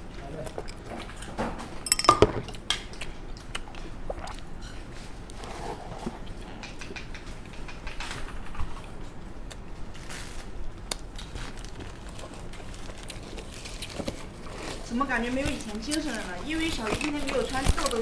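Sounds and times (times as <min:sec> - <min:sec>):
utensils clinking on dishes: 0:00.6 - 0:02.8.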